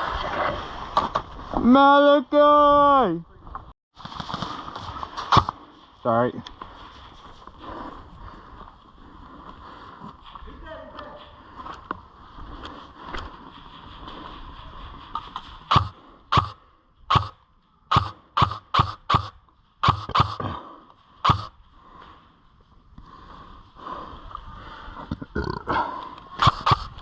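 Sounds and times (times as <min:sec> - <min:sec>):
sharp snaps: 0:05.2 - 0:05.6, 0:15.2 - 0:20.5, 0:21.2 - 0:21.5, 0:26.4 - 0:27.0.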